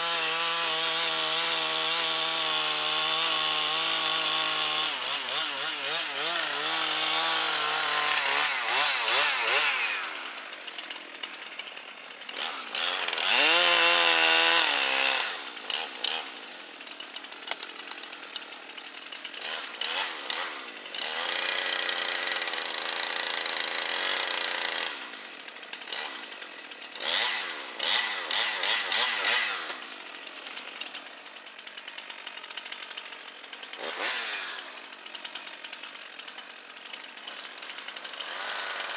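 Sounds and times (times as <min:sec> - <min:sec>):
chainsaw revving and cutting: 0:00.0 - 0:38.9.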